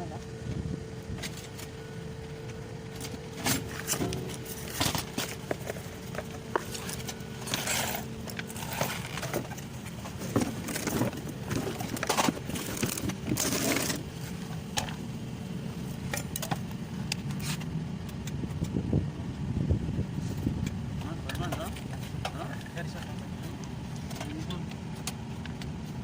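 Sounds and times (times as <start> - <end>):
steady low hum: 0.0 - 26.0
scraping: 2.9 - 14.4.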